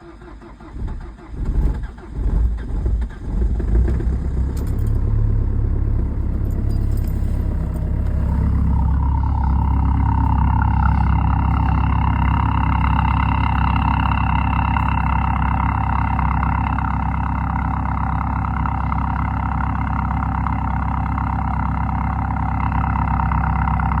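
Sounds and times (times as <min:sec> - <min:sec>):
diesel engine idling: 0:00.0 - 0:24.0
high whine: 0:05.0 - 0:17.1.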